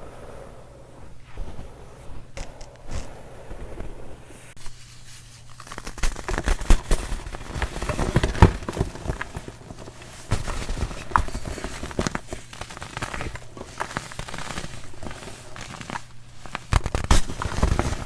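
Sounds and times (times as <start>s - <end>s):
baking soda crunching: 4.4s - 18.0s.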